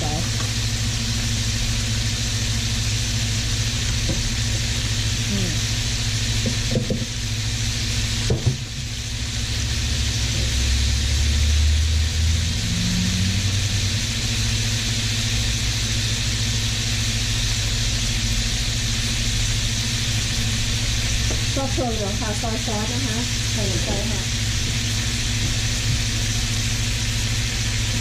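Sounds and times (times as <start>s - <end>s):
meat sizzling in a frying pan: 0.0s - 28.0s
steady low hum: 0.0s - 28.0s.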